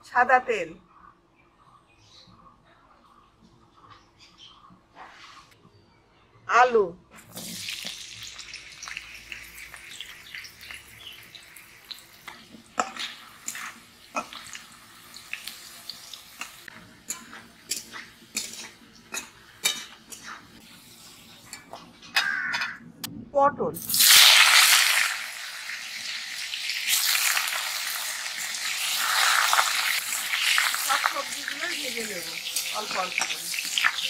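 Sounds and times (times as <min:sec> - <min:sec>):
potatoes sizzling in hot oil: 0:07.3 - 0:21.5, 0:23.8 - 0:34.0
spatula scraping a metal pan: 0:17.0 - 0:20.6.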